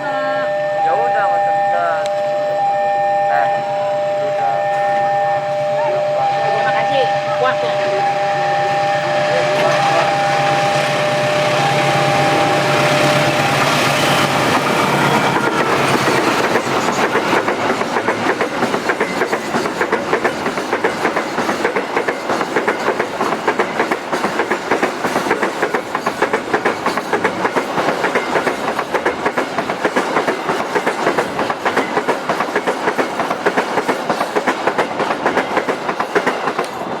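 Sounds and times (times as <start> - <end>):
steady tones: 0.0 - 18.3
train wheels clattering: 6.5 - 37.0.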